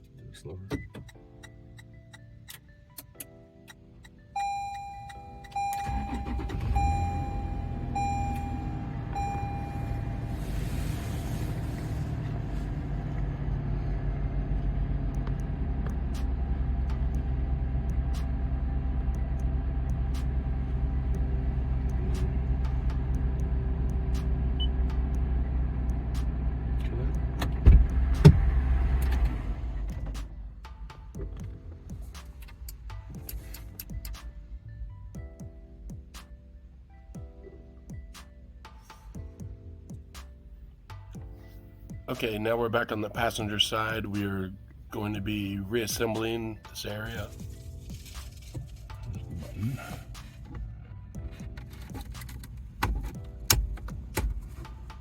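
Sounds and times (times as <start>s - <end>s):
car engine starting and idling: 0.4s - 55.0s
remote start beeps: 4.4s - 10.5s.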